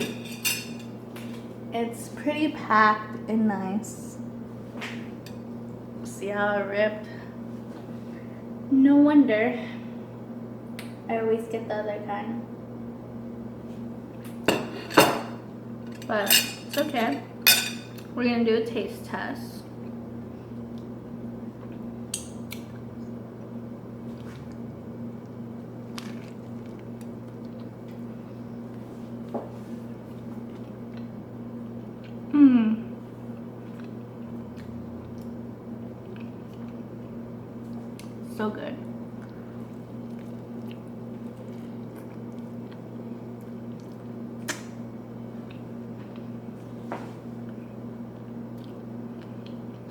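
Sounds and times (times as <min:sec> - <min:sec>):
steady low hum: 0:00.0 - 0:49.9
person chewing food: 0:25.9 - 0:28.8, 0:30.0 - 0:32.3, 0:33.1 - 0:38.2, 0:39.1 - 0:44.6, 0:45.3 - 0:46.7, 0:47.3 - 0:49.9.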